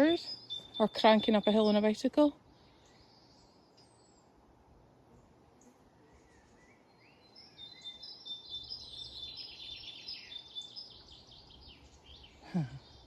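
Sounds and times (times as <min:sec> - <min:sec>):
great tits singing: 0:00.0 - 0:04.0.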